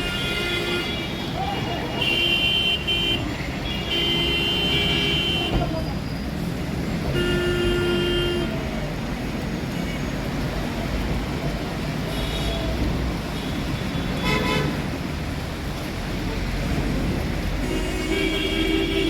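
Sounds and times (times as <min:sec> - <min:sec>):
vehicle horns honking: 0:00.0 - 0:05.6, 0:07.1 - 0:08.6, 0:13.4 - 0:14.8, 0:17.6 - 0:19.0
traffic engine rumble: 0:00.0 - 0:19.0.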